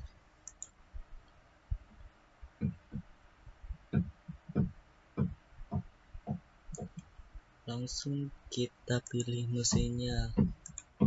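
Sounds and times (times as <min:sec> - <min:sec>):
computer mouse clicks: 0:00.4 - 0:00.8, 0:08.9 - 0:11.0.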